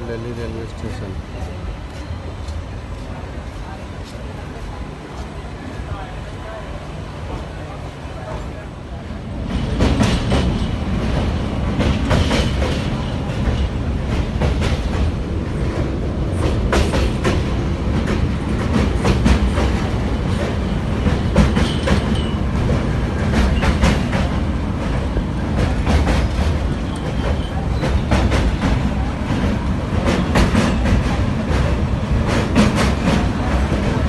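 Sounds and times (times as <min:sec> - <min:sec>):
train rumbling on track: 0:00.0 - 0:34.0
wheels clacking over rail joints: 0:09.4 - 0:34.0.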